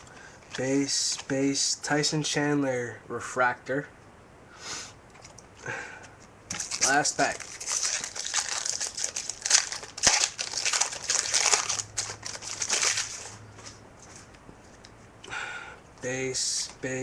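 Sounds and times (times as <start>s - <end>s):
foil wrapper crinkling: 6.5s - 13.8s.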